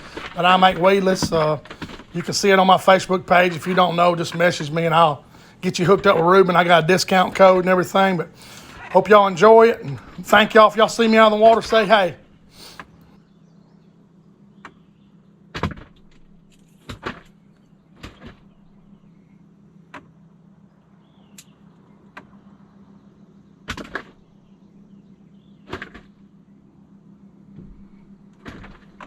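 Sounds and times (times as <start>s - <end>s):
fishing gear knocks and clicks: 0.0s - 2.5s
low hum: 0.0s - 29.0s.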